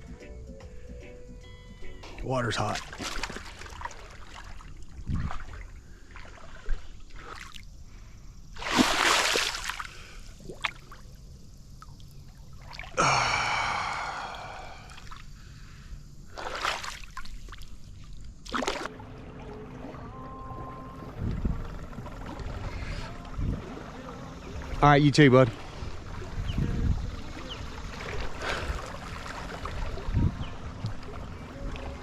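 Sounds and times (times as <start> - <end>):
water splashing: 2.2 - 7.6, 8.6 - 11.0, 16.3 - 32.0
person breathing hard: 13.0 - 16.0.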